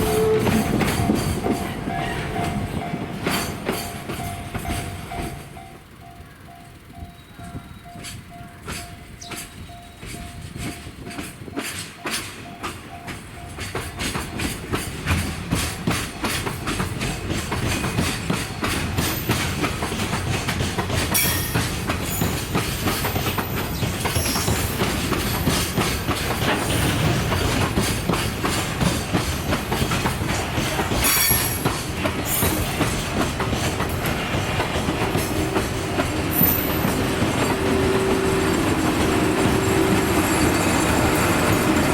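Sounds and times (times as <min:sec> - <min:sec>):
high-pitched wheel squeals: 0:00.0 - 0:02.7, 0:24.0 - 0:24.8, 0:36.3 - 0:41.9
train wheels clattering over joints: 0:00.0 - 0:41.9.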